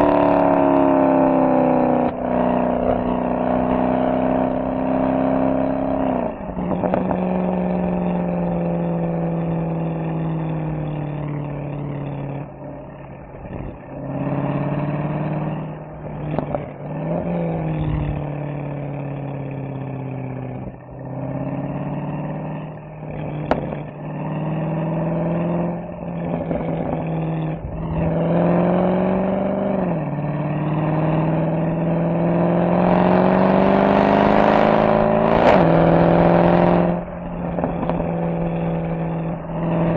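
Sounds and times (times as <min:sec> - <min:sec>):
car exhaust roaring: 0:00.0 - 0:39.9
engine rev blips: 0:00.0 - 0:39.9
exhaust pop: 0:02.0 - 0:02.2, 0:06.4 - 0:07.3, 0:16.2 - 0:16.9, 0:23.1 - 0:24.0, 0:37.0 - 0:39.6.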